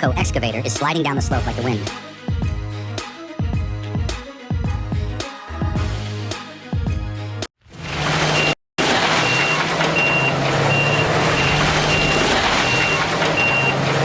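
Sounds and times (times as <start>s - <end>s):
engine running: 7.8s - 14.0s
rumble of working equipment: 7.8s - 14.0s
backup alarm beeping: 8.3s - 14.0s.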